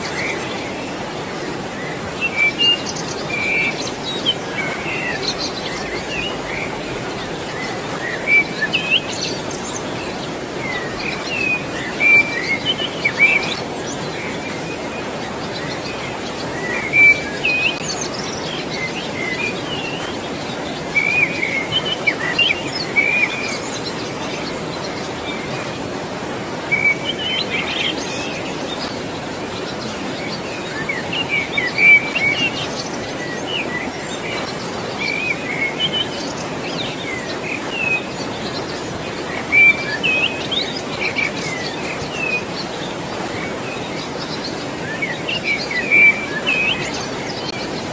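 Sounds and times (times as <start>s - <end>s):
birds chirping and calling: 0.0s - 47.9s
flowing water: 0.0s - 47.9s.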